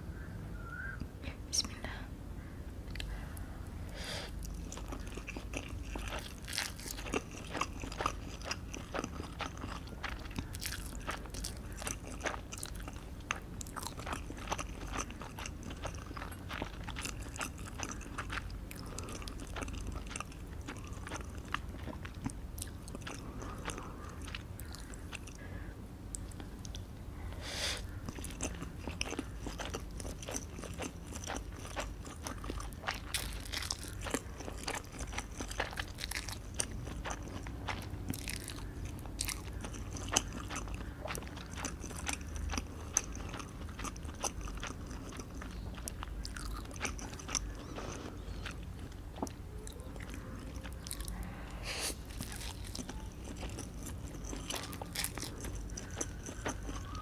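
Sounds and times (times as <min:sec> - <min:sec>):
person chewing crunchy food: 0:02.9 - 0:25.5, 0:27.7 - 0:57.0.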